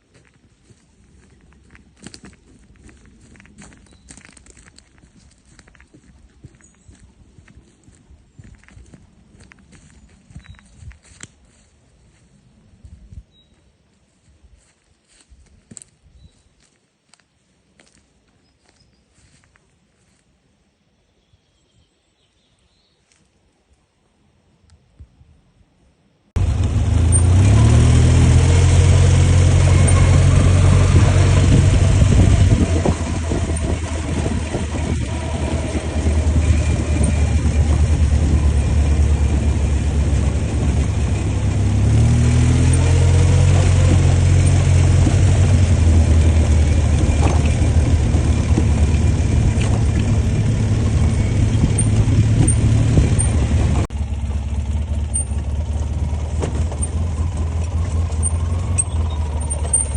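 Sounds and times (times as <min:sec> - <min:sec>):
quad bike engine revving: 0:26.4 - 0:59.9.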